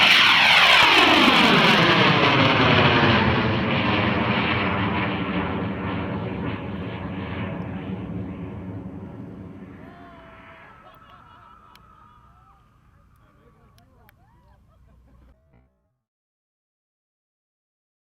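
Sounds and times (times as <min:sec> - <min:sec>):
rocket motor roaring: 0:00.0 - 0:13.8.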